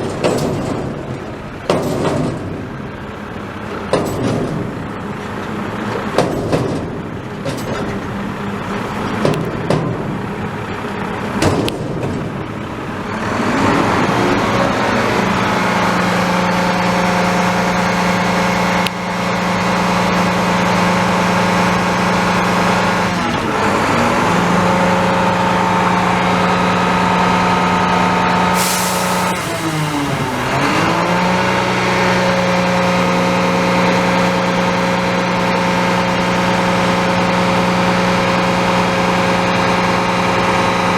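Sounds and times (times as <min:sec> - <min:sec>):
sharp knocks and clanks: 0:00.0 - 0:02.7, 0:03.8 - 0:04.8, 0:06.0 - 0:08.0, 0:09.0 - 0:10.2
garbage truck diesel engine: 0:00.0 - 0:40.9
short air hiss: 0:28.5 - 0:30.8.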